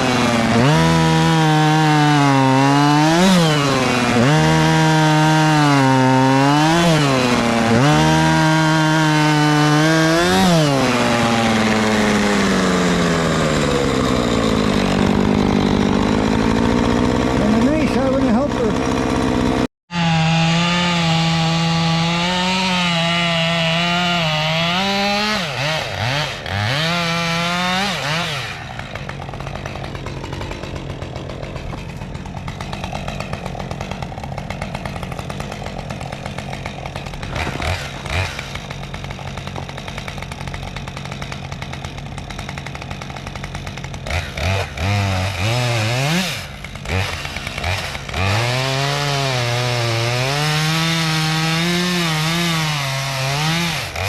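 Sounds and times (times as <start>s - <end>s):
chainsaw running: 0.0s - 54.0s.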